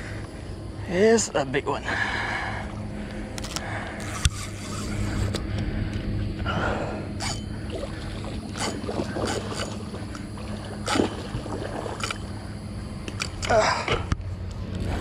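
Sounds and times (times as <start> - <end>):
fish thrashing in water: 7.5 - 12.3.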